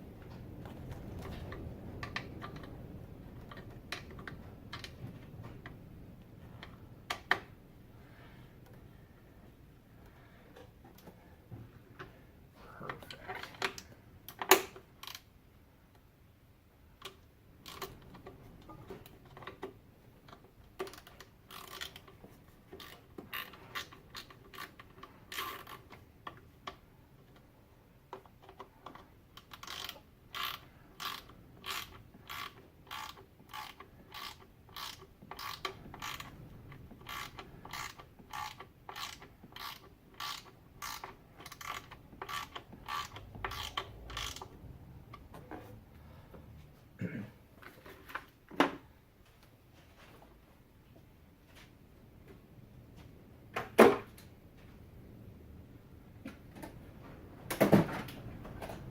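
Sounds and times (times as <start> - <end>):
ratchet wrench clicking: 29.4 - 36.3, 37.0 - 44.5.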